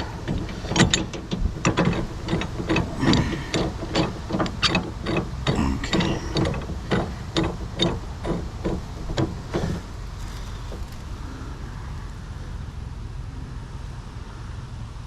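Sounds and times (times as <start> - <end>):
sharp regular clicks: 0.0 - 11.3
steady low rumble: 0.0 - 15.0.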